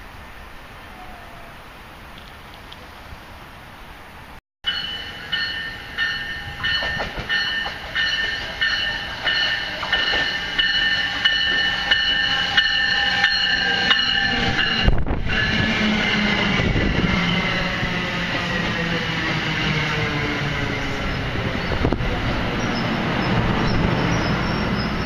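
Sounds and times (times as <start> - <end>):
commuter train passing: 0.0 - 25.0
high chiming tone: 4.6 - 16.0.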